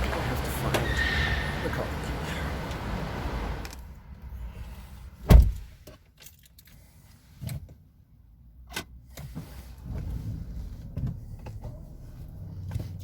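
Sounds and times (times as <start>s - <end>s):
car door shutting: 5.2s - 5.7s.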